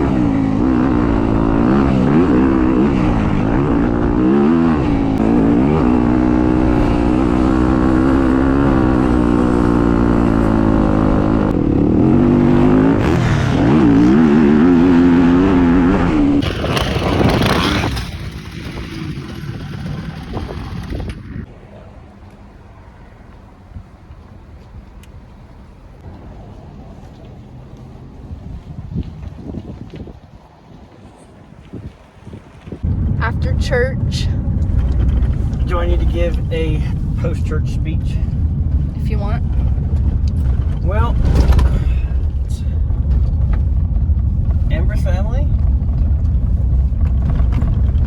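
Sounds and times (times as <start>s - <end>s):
dirt bike engine revving: 0.0s - 21.5s.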